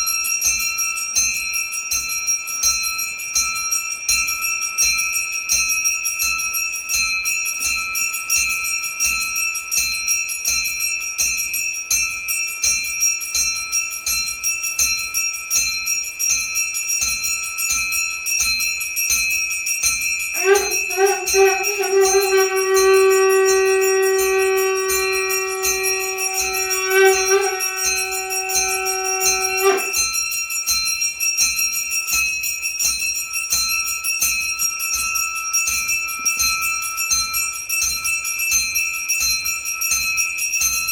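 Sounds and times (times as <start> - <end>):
conch shell blown: 20.4 - 30.1.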